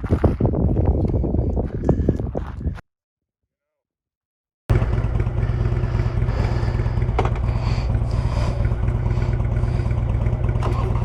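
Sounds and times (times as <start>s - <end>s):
motorcycle engine running: 4.7s - 11.0s.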